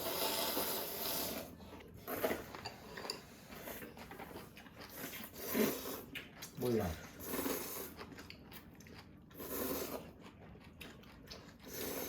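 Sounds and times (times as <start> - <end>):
utensils clinking against dishes: 2.2 - 4.2.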